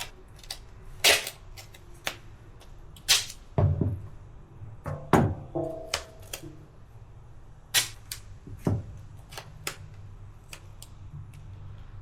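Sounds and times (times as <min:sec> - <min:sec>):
hands working duct tape: 0:00.0 - 0:03.6, 0:05.9 - 0:06.7, 0:07.7 - 0:12.0.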